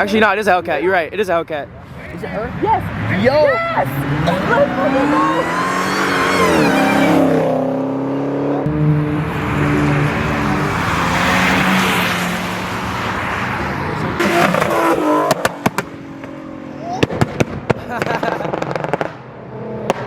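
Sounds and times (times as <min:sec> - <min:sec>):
car engine revving: 0:02.3 - 0:20.0
exhaust pops: 0:14.2 - 0:16.4, 0:17.0 - 0:19.2.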